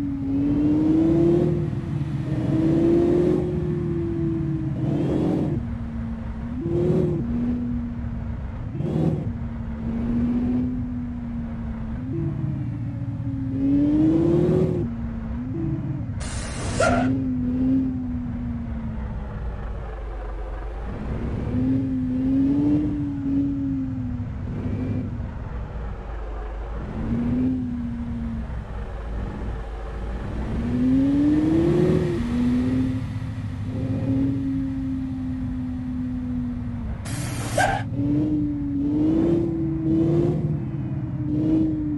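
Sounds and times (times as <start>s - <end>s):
truck engine revving: 0.0s - 41.9s
loud air hiss: 16.2s - 16.9s, 37.1s - 37.8s.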